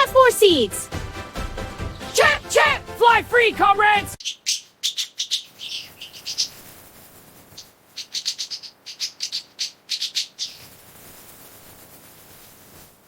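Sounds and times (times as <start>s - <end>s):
canaries chirping: 1.8s - 6.6s, 7.6s - 10.8s
faint hiss: 6.2s - 8.0s, 10.4s - 13.0s.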